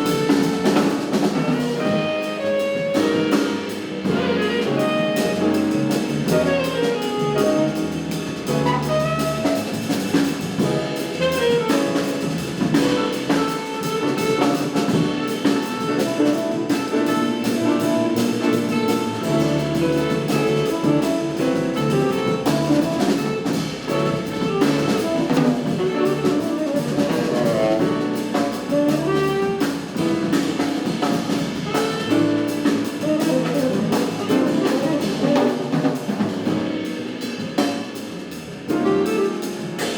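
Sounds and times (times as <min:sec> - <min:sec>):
saxophone melody: 0:00.0 - 0:10.0, 0:10.8 - 0:35.8, 0:38.7 - 0:39.9
cymbals and drums: 0:00.0 - 0:39.9
piano: 0:00.0 - 0:39.9
walking bass line: 0:16.0 - 0:35.4.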